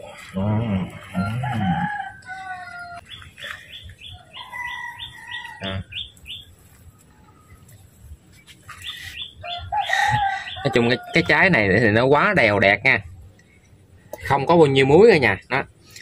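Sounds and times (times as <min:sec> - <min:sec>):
small bird chirping: 0:02.9 - 0:10.8.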